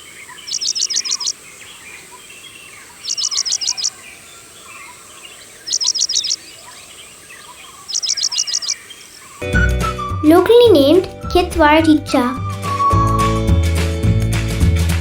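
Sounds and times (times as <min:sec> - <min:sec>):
pipit calling high sharp chirps: 0:00.0 - 0:09.5.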